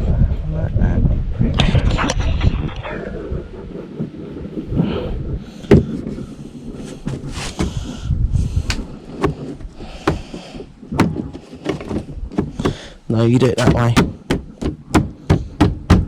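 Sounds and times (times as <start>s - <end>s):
scraping and rustling: 5.6s - 15.5s
plastic trim clicks and knocks: 13.6s - 16.0s.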